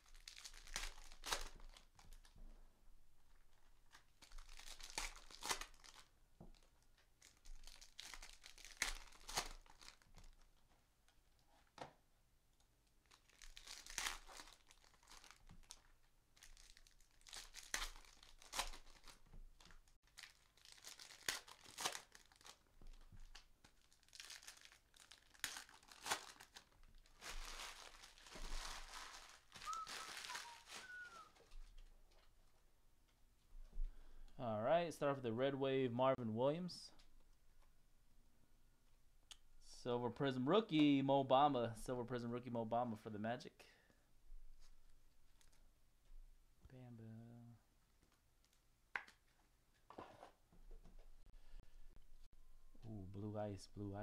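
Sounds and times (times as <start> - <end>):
foil wrappers crinkling and tearing: 0.0 - 2.3, 3.5 - 10.5, 13.0 - 31.8.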